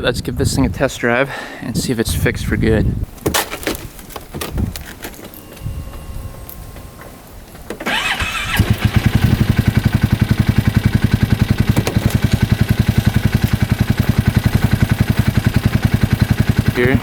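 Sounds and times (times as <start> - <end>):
electric starter cranking: 7.7 - 17.0
engine idling: 7.8 - 17.0.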